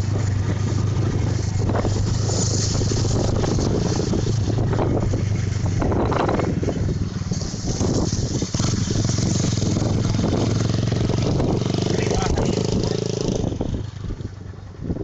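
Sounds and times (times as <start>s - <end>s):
motorcycle engines idling: 0.0s - 15.0s.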